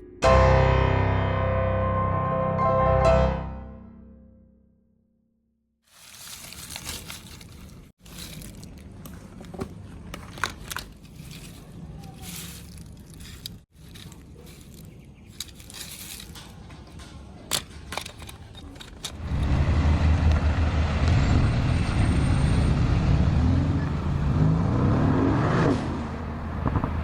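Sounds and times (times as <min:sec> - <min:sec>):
vehicle engine rumbling: 0:05.9 - 0:27.0.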